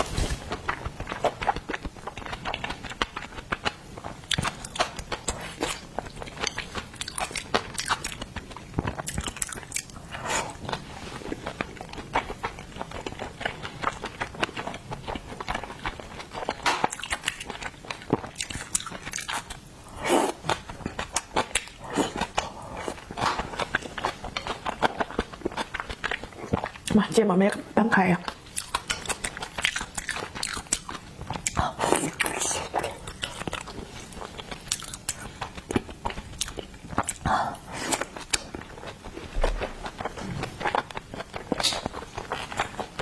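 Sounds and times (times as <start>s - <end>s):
chewing and biting seafood: 0.6s - 26.9s, 28.3s - 43.0s.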